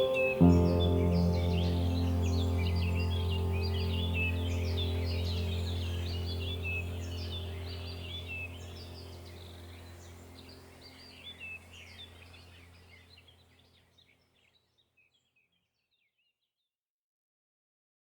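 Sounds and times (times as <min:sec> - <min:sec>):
low steady hum: 0:00.0 - 0:13.5
birds chirping: 0:00.0 - 0:15.3.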